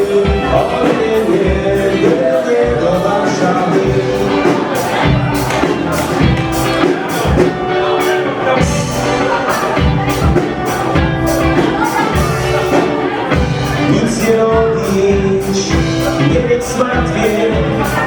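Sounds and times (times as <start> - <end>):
band playing dance music: 0.0 - 18.0
steady drum beat: 0.0 - 18.0
sustained keyboard notes: 0.0 - 18.0.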